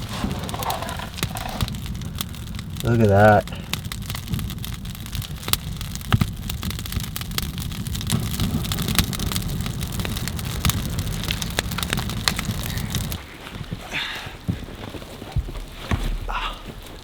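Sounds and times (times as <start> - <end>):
low rumble: 0.0 - 13.2
small fire crackling and popping: 0.0 - 17.0.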